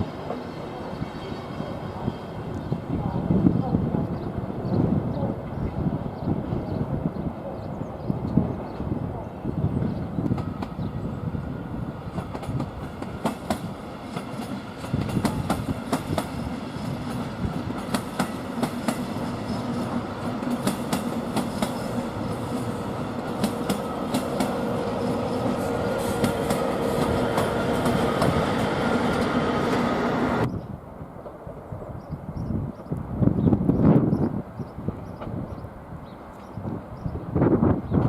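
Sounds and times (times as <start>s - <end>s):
train rumble: 0.0s - 38.0s
train wheels clicking over rail joints: 12.1s - 29.9s.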